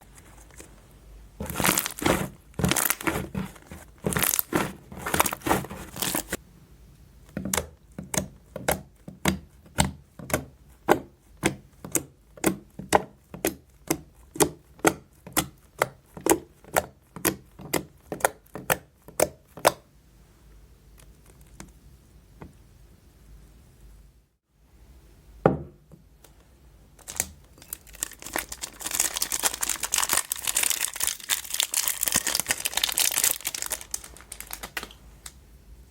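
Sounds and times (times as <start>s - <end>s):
slime popping: 1.4s - 6.4s
slime squishing: 1.4s - 6.4s, 27.0s - 35.0s.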